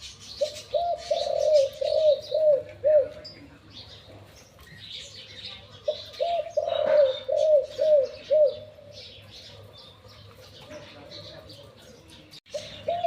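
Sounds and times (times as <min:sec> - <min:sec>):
dove cooing: 0:00.0 - 0:03.4, 0:05.7 - 0:11.0, 0:12.5 - 0:13.0
small birds chirping: 0:00.0 - 0:13.0.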